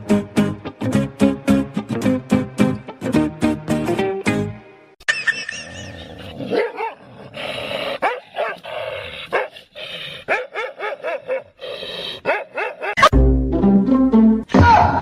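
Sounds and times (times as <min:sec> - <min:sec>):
dog barking: 0:06.5 - 0:07.0, 0:08.0 - 0:08.7, 0:09.3 - 0:09.5, 0:10.3 - 0:11.6, 0:12.2 - 0:13.1.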